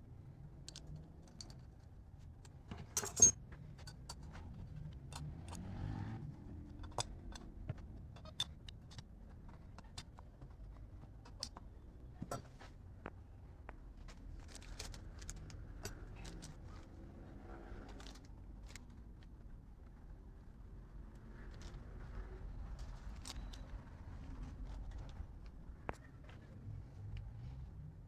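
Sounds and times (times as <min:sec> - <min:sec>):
metal parts and tools clinking: 0:02.9 - 0:04.3.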